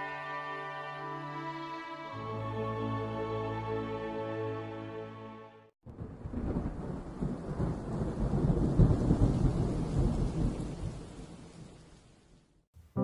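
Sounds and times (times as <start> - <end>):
thunder rumbling: 5.8 - 12.4.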